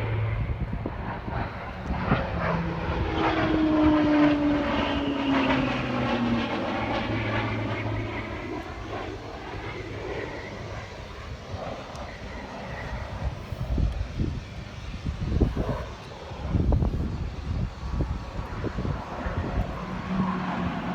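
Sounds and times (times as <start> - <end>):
airplane flying past: 0.0 - 20.9.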